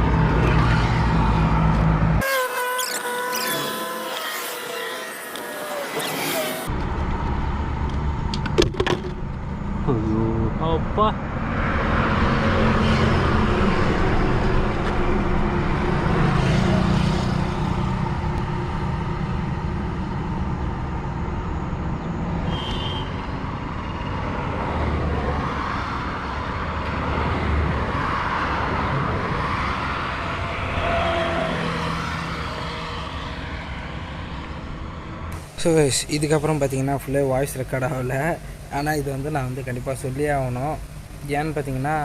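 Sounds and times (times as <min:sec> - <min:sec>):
vehicles passing: 0:00.0 - 0:02.2, 0:02.9 - 0:42.0.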